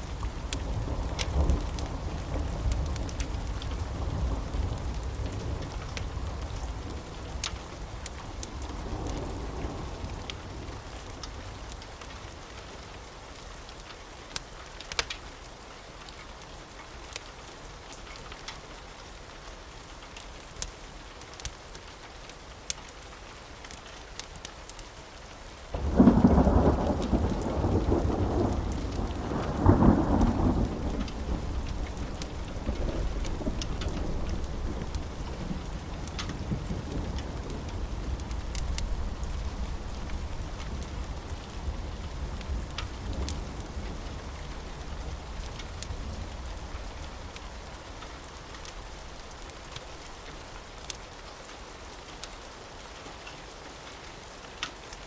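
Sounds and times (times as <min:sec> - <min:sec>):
thunder rumble: 0:00.0 - 0:11.6, 0:25.7 - 0:50.5
steady rain: 0:00.0 - 0:55.0.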